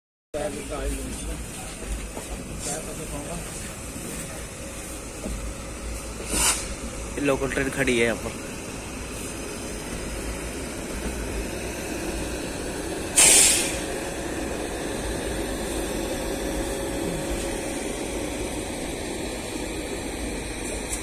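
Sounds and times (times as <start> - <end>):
low rumble of trains: 0.4 - 21.0
compressed air hiss: 6.2 - 6.8, 13.1 - 14.0.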